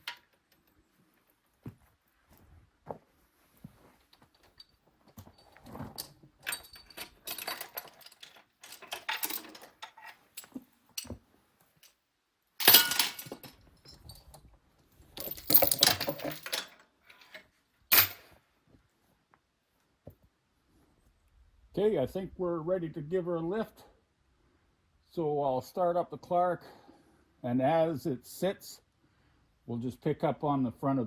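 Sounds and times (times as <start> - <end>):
metal chain clanking: 5.3 - 11.2, 12.6 - 14.4, 15.2 - 18.3.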